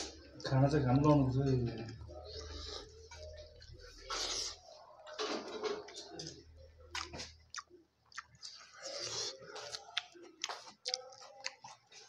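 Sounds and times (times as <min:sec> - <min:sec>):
chewing with wet mouth clicks: 0:06.9 - 0:12.0.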